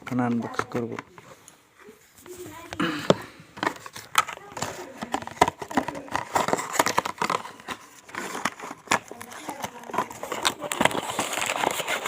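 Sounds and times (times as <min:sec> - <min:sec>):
packaging crinkling: 0:02.0 - 0:12.0.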